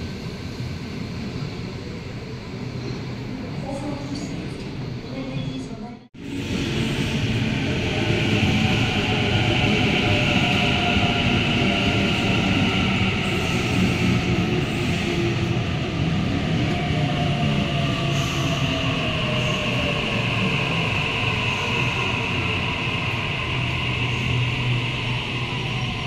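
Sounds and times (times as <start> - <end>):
electric train rumble and hiss: 6.2 - 26.0.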